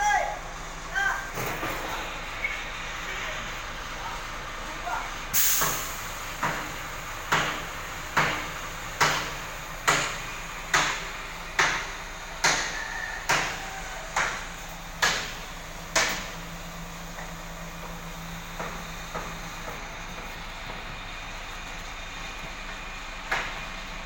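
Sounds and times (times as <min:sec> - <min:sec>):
hammer striking: 0:07.3 - 0:16.4.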